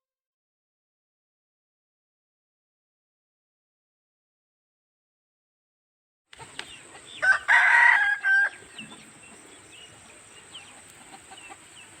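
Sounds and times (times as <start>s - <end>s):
rooster crowing: 7.2s - 9.0s.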